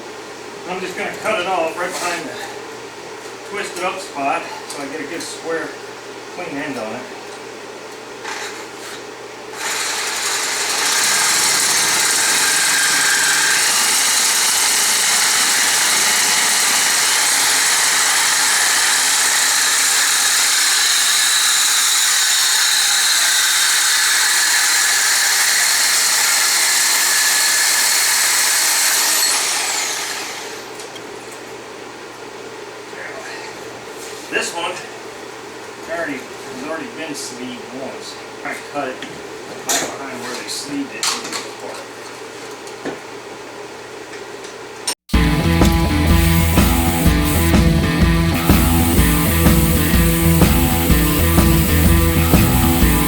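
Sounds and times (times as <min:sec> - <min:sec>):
power tool cutting steel tubing: 0:09.5 - 0:30.9, 0:45.1 - 0:53.0.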